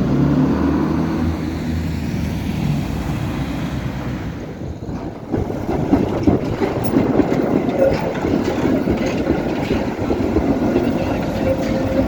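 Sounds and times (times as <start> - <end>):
tram motor hum: 4.1 - 12.0
knocking and rattling: 4.8 - 12.0.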